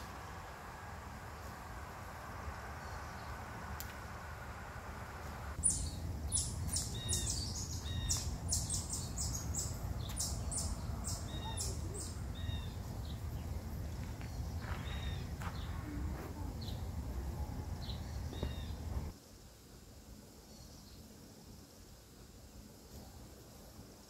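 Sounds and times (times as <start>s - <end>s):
birds chirping: 0.0s - 19.1s
steady low rumble: 0.0s - 19.1s.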